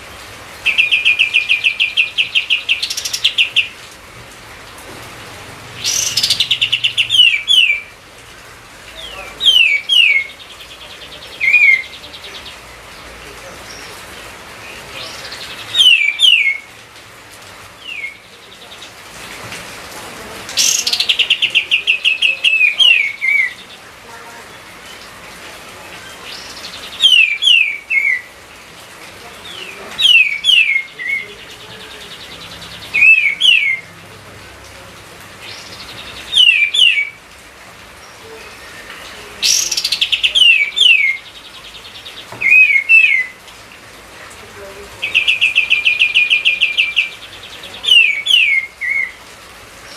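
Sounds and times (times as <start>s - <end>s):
songbird whistling: 5.9s - 7.9s, 15.7s - 16.7s, 17.8s - 18.2s, 26.4s - 28.3s, 30.0s - 31.3s, 33.0s - 33.8s, 36.3s - 37.2s, 42.4s - 43.4s, 47.8s - 49.2s.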